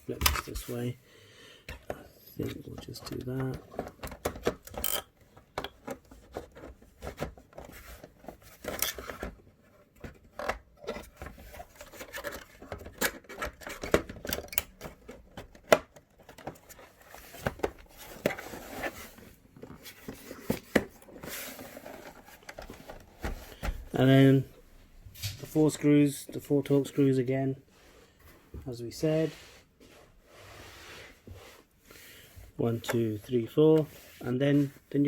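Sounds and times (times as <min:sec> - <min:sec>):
plastic casing clicks and scrapes: 0:01.7 - 0:23.8.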